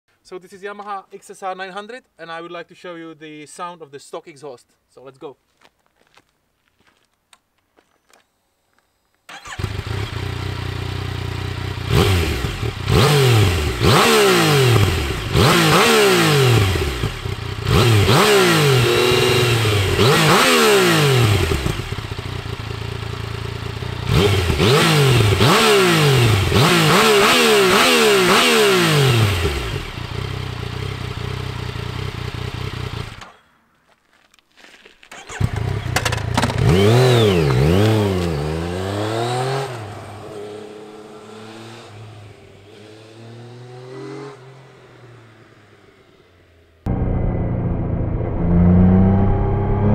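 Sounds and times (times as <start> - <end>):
motorcycle engine revving and idling: 9.3 - 33.4, 35.2 - 49.9.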